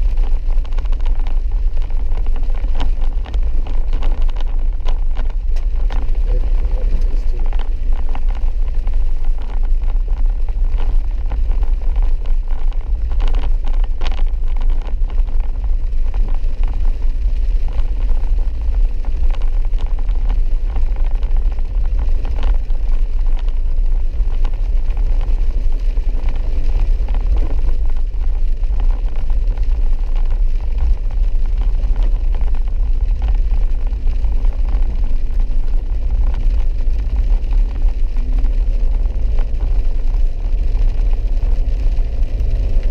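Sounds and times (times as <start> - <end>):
vehicle driving on dirt road: 0.0 - 42.9.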